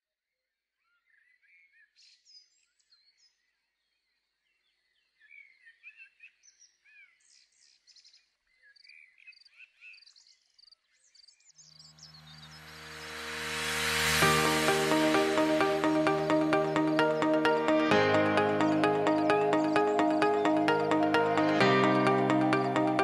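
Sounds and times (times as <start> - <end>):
music: 12.0 - 23.0.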